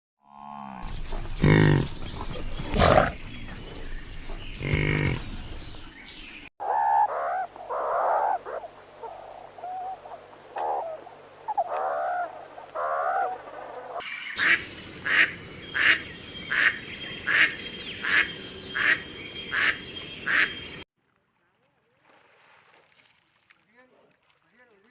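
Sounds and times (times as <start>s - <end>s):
deep animal calls: 0.2s - 5.9s, 6.6s - 20.5s
warbling animal calls: 0.3s - 5.6s, 6.6s - 19.7s.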